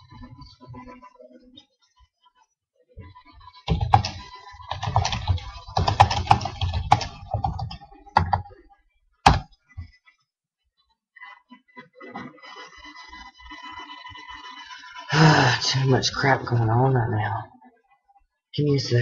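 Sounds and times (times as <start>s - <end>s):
computer keyboard typing: 3.7s - 8.5s, 9.3s - 9.5s.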